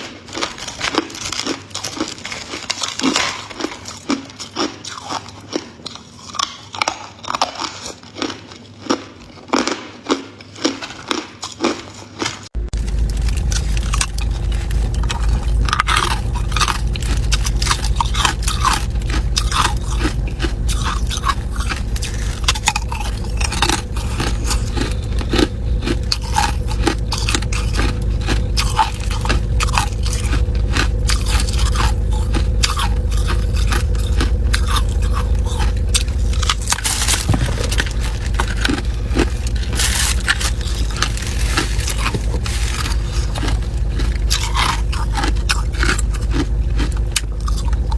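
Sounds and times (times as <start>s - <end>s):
ice being chewed: 0.0s - 47.9s
low hum: 12.6s - 47.9s.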